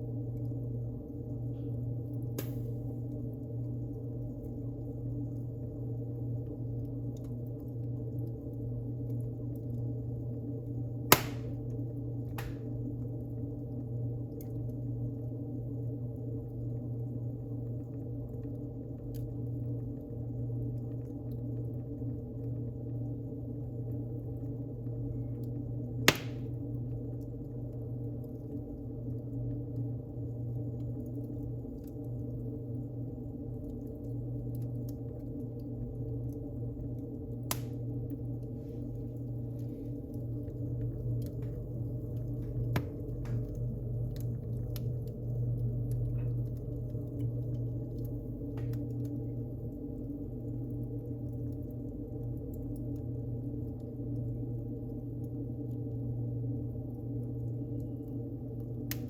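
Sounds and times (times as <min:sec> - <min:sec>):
fire crackling: 0:00.0 - 0:59.0
fire rumbling: 0:00.0 - 0:59.0
loud sharp pop: 0:11.1 - 0:11.6, 0:12.4 - 0:12.6, 0:26.1 - 0:26.5.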